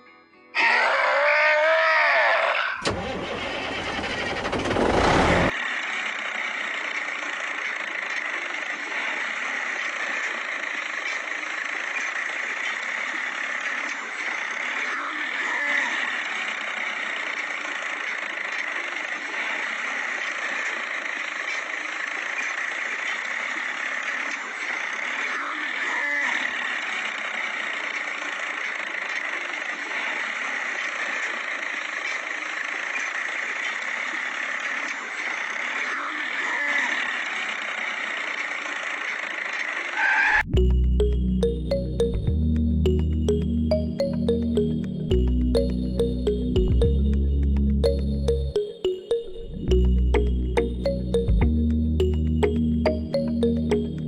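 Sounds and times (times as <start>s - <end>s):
music: 0.0s - 0.6s, 40.5s - 54.0s.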